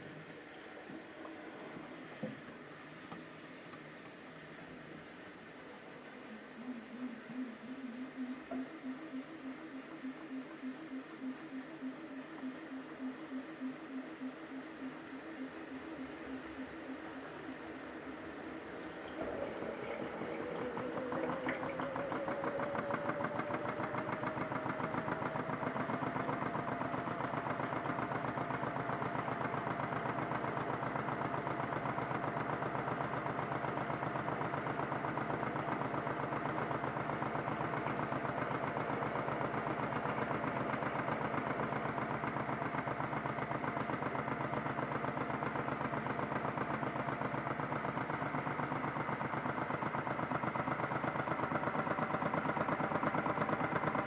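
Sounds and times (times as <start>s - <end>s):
toy washing machine motor whine: 19.2s - 54.0s.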